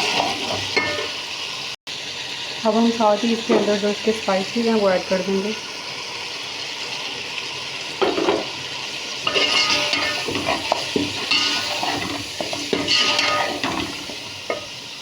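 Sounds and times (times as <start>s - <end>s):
spoon scraping a pot: 0.0s - 1.2s, 9.3s - 14.7s
food sizzling in hot oil: 0.0s - 15.0s.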